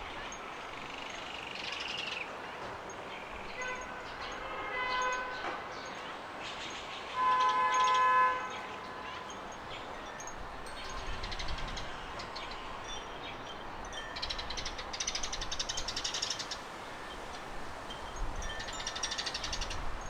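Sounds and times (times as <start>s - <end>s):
distant horn toots: 3.6s - 5.7s, 7.1s - 9.3s
small birds chirping: 7.8s - 17.3s.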